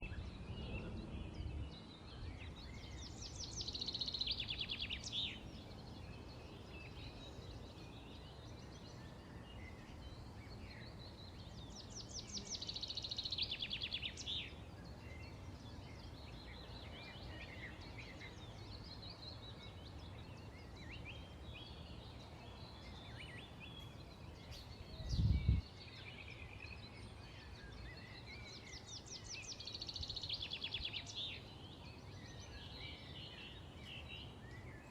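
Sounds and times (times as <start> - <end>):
birds singing trilled song: 0.0 - 34.9.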